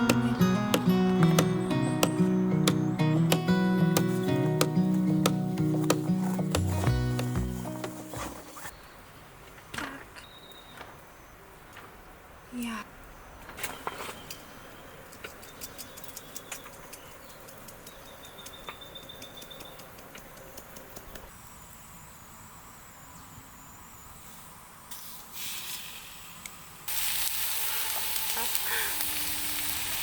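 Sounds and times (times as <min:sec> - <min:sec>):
meat sizzling on a grill: 0:25.0 - 0:30.0.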